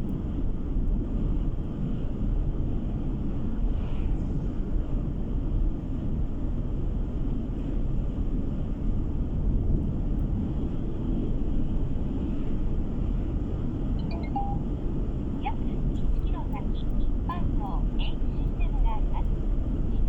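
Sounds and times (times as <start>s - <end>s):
car interior road rumble: 9.6s - 20.0s.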